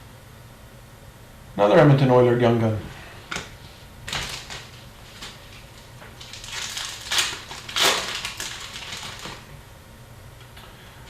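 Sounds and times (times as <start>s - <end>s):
foil wrapper crinkling and tearing: 4.0s - 9.6s.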